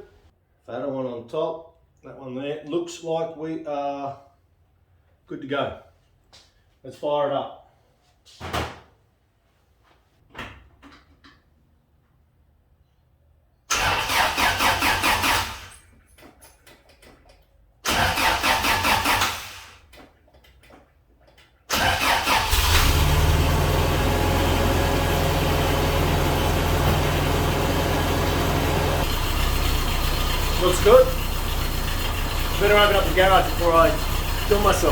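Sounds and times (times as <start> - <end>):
engine cranking on starter: 13.7 - 15.8, 17.8 - 19.8, 21.7 - 34.9
engine idling: 21.8 - 34.9.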